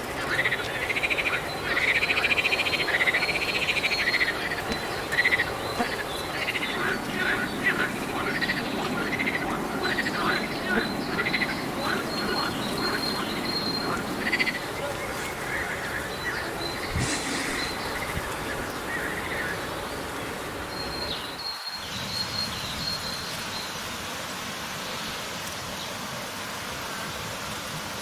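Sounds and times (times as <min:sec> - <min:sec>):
chorus of frogs or insects: 0:00.0 - 0:23.9
smooth hiss-like drone: 0:00.5 - 0:21.3.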